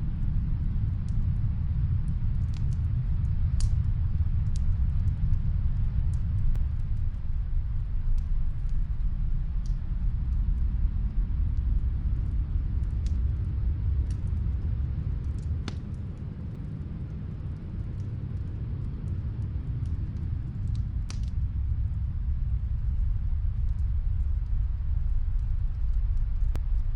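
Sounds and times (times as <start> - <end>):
muffled fireplace crackles: 0.0 - 26.9
wind rumbling: 0.0 - 26.9.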